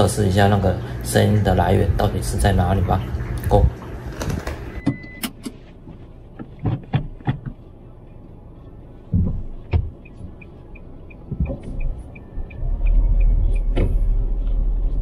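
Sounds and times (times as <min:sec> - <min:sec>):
car door thump: 0:06.4 - 0:07.6, 0:09.1 - 0:10.0.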